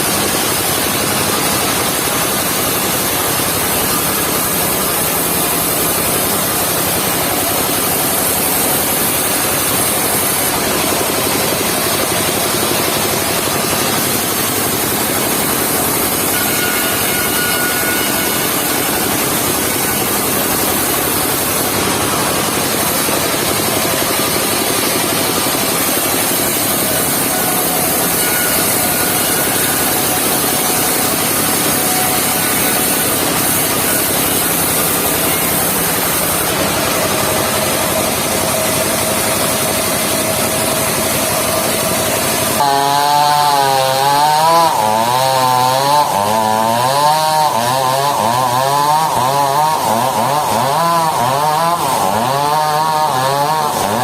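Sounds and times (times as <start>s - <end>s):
sawmill cutting log: 0.0s - 54.0s.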